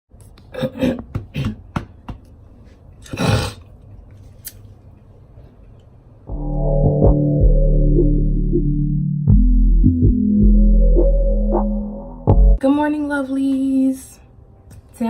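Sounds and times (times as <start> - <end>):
background music: 6.3 - 15.0.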